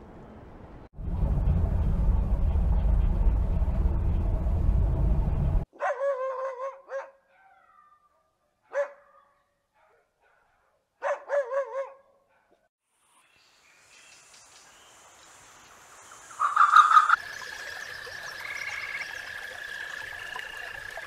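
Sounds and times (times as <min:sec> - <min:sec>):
loud low rumbling: 0:01.0 - 0:05.6
dog yelping whines: 0:05.8 - 0:08.0.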